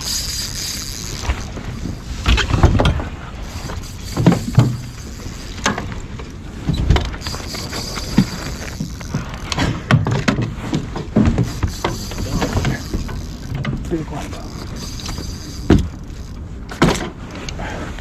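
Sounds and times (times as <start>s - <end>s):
knocks and thumps on a kayak: 16.7s - 17.2s.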